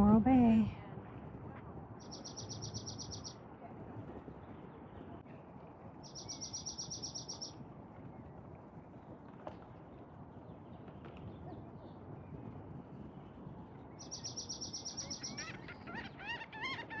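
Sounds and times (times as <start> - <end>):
outdoor background noise: 0.0 - 17.0
songbird trilling: 2.0 - 3.3, 6.1 - 7.5, 14.0 - 16.4.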